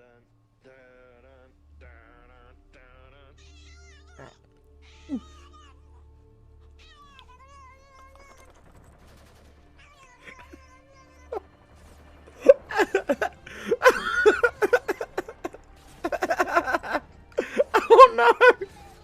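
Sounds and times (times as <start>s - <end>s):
cat meowing and yowling: 3.4s - 5.8s, 6.8s - 8.3s.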